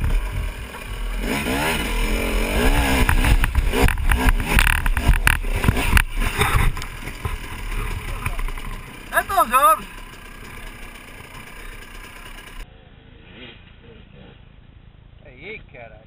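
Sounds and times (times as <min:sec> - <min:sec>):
dirt bike engine revving: 0:00.0 - 0:12.6
sharp knocks and clatter: 0:02.6 - 0:08.9.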